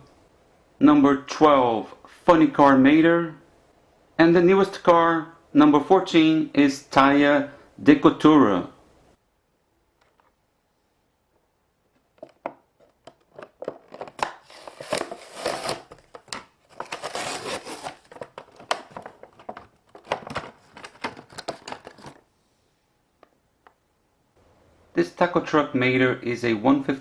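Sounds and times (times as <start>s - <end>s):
packaging crinkling and tearing: 13.3s - 22.2s.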